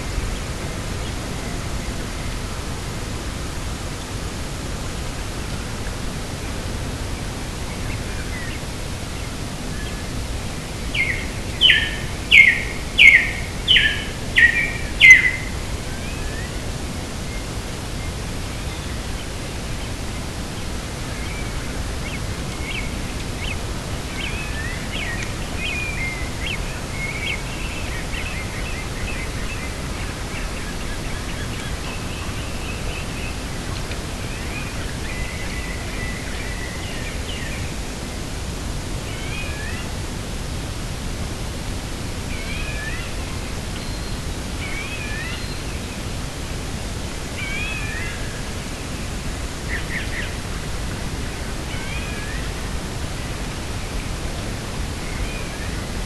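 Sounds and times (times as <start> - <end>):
small birds chirping: 0.0 - 37.8
wind and sea rushing: 0.0 - 56.0.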